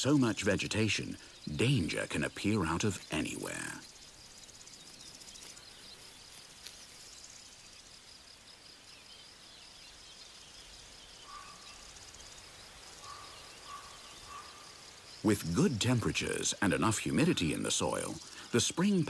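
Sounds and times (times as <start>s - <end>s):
high-pitched insect trill: 0.1s - 19.0s
small bird chirps: 0.5s - 15.8s
clear whistled bird notes: 13.0s - 14.6s.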